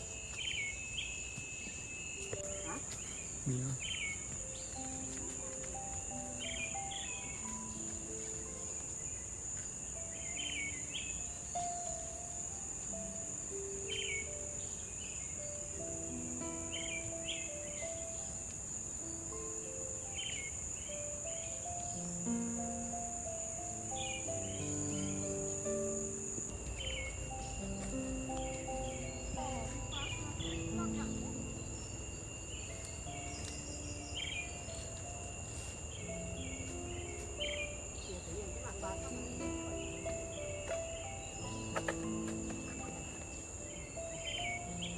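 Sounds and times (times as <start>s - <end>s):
bird chirping: 0.0s - 44.9s
insects shrilling: 0.0s - 44.9s
soft background music: 0.0s - 44.9s
faint low held notes: 21.5s - 44.9s.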